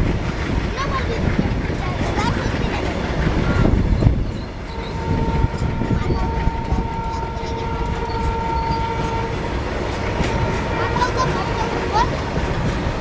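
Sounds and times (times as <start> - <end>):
train wheels rumbling on rails: 0.0 - 13.0
high squeal of wheels on rail: 3.4 - 9.4.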